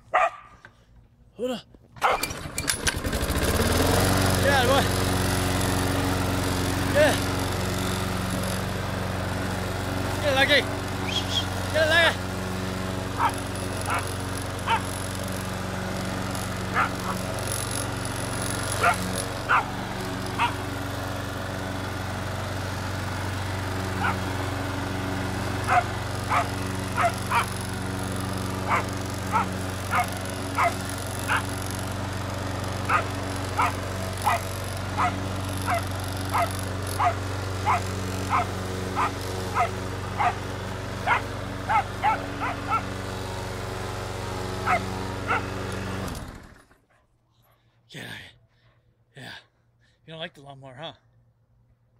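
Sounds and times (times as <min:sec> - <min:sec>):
dog barking: 0:00.1 - 0:00.6, 0:13.2 - 0:14.0, 0:16.8 - 0:17.2, 0:18.8 - 0:19.7, 0:25.7 - 0:27.5, 0:28.7 - 0:31.4, 0:33.6 - 0:34.4, 0:35.0 - 0:40.4, 0:41.1 - 0:42.8, 0:44.7 - 0:45.4
lawn mower engine drone: 0:00.1 - 0:46.9.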